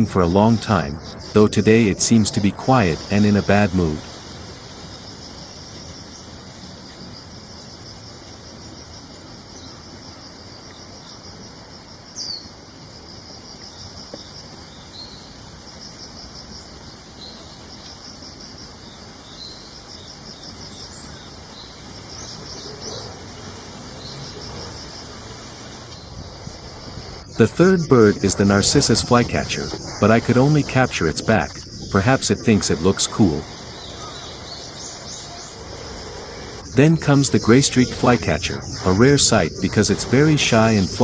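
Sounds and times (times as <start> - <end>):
songbirds chirping: 0.0 - 41.0
bird call sliding downward: 22.3 - 41.0
pulsed high trill: 26.7 - 41.0.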